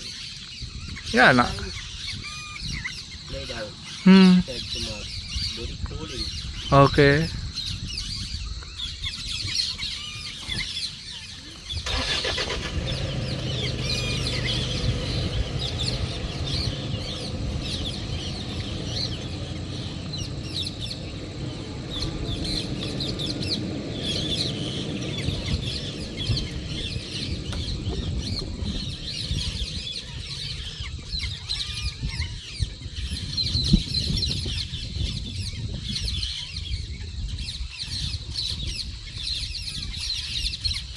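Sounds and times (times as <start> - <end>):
birds chirping: 0.0 - 40.9
vehicle engine starting and running: 11.7 - 31.5.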